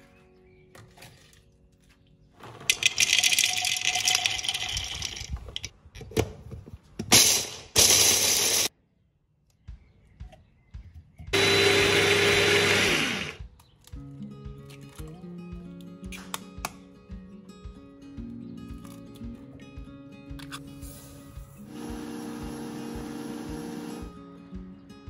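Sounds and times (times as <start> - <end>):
blender motor running: 11.4 - 13.4, 21.7 - 24.2.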